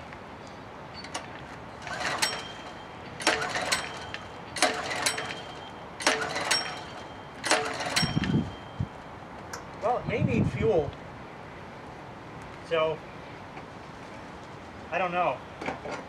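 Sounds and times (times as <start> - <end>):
engine recoil starter pulls: 1.0 - 8.7.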